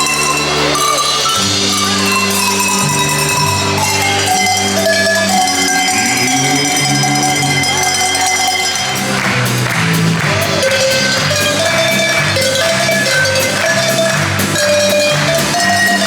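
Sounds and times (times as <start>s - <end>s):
tuned cowbells ringing melody: 0.0s - 9.6s, 10.4s - 16.0s
band playing held low notes: 0.0s - 16.0s.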